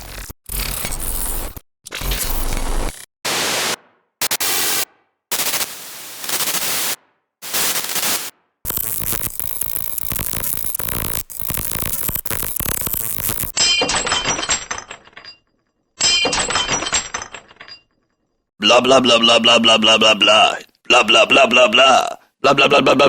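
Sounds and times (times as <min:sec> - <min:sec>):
crackling static: 0:02.3 - 0:13.5
static hiss bursts: 0:02.8 - 0:13.5.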